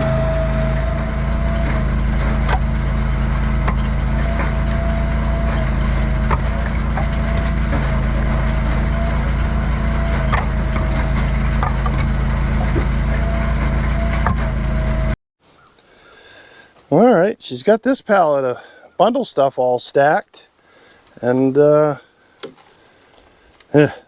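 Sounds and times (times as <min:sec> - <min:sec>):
log splitter engine running: 0:00.0 - 0:15.2
wood cracking and splintering: 0:00.2 - 0:14.5.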